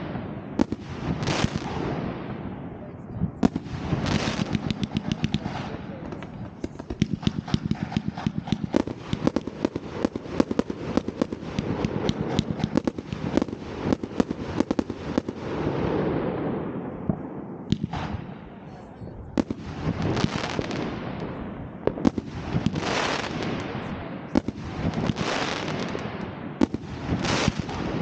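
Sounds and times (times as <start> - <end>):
fireworks crackling bangs: 0.0 - 18.6, 19.3 - 28.0
fireworks rumbling hiss: 0.0 - 28.0.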